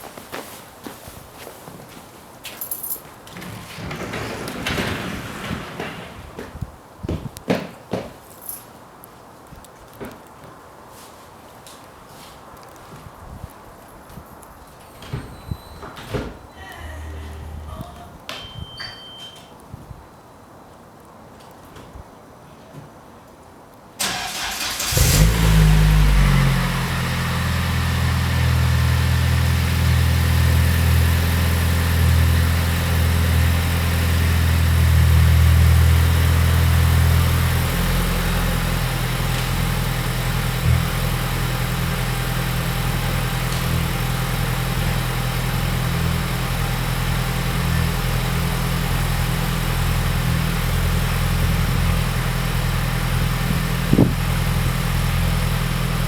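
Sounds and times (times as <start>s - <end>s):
car engine starting and idling: 24.0s - 56.0s.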